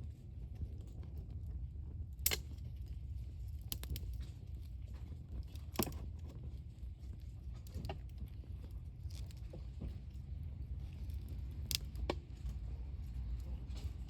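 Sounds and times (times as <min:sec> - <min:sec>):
wood fire popping: 0:03.6 - 0:04.2.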